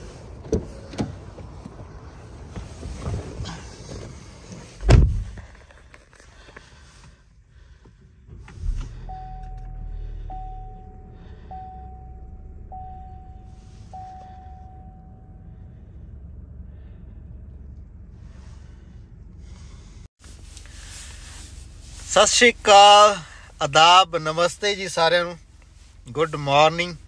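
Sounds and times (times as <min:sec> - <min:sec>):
vehicle engine running: 0:00.0 - 0:27.0
thump: 0:04.8 - 0:05.5
warning chime: 0:09.1 - 0:15.5.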